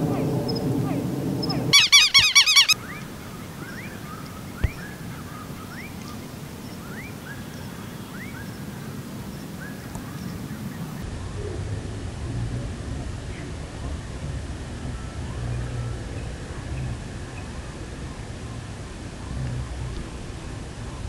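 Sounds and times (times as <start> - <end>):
birds calling: 1.4 - 11.0.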